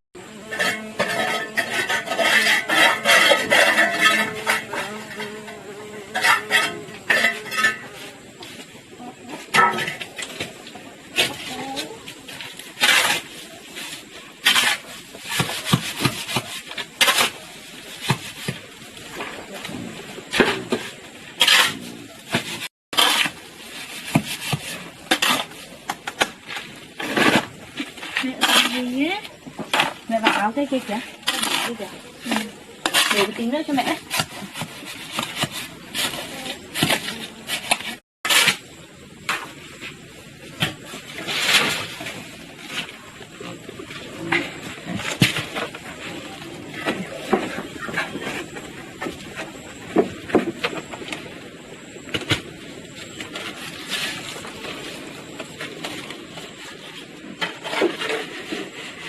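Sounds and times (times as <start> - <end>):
scraping strokes on wood: 0.4 - 8.7.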